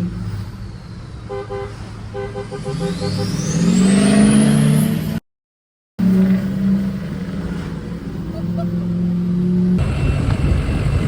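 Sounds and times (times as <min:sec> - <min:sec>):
truck engines revving: 0:00.0 - 0:05.2, 0:06.0 - 0:11.0
rough loud engine rumble: 0:09.8 - 0:11.0.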